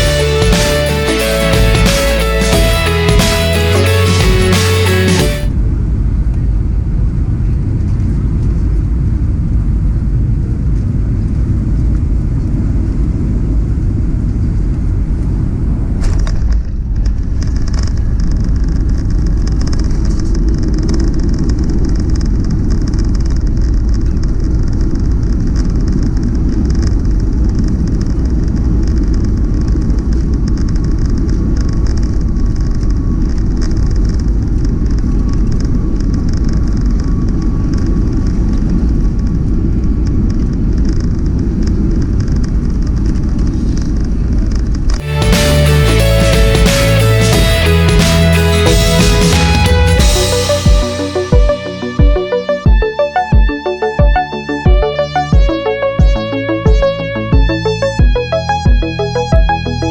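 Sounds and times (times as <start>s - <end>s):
jet engine low rumble: 5.5s - 21.6s.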